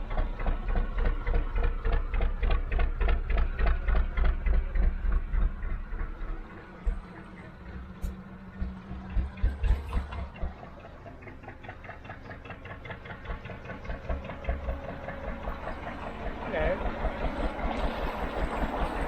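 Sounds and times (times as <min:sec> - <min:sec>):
diesel engine running slowly: 0:00.0 - 0:19.0.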